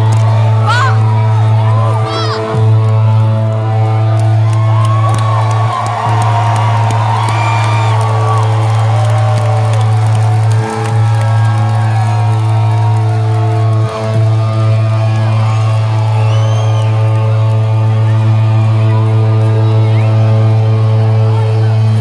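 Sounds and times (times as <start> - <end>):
crowd whooping and whistling: 0.0 - 21.8.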